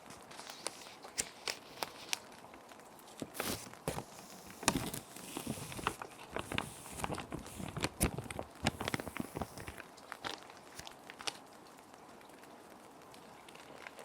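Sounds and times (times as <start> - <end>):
plastic sheet protectors crinkling: 0.0 - 2.3, 3.1 - 11.4
rain: 0.0 - 3.3, 7.8 - 14.0.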